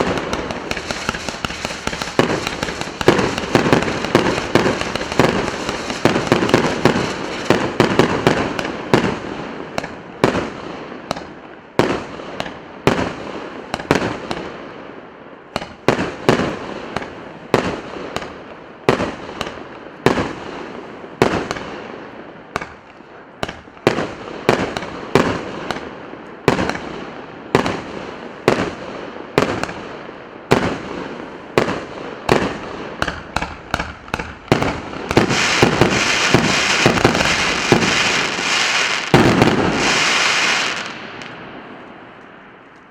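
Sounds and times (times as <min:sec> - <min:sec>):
fireworks firing rapid shots: 0:00.0 - 0:13.2, 0:30.5 - 0:41.4
crackling fireworks barrage: 0:00.0 - 0:42.0.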